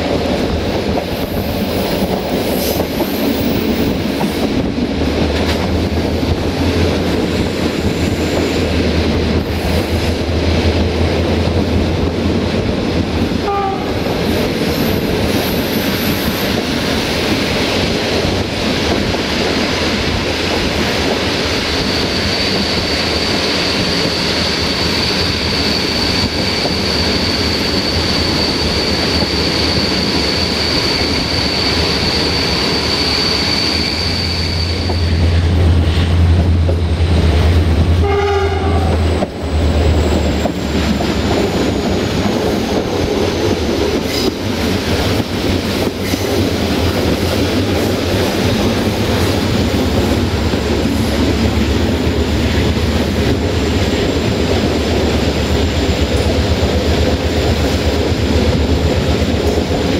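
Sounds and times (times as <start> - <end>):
train rolling with wheel clatter: 0.0 - 59.9
thin high squeal: 32.0 - 35.3.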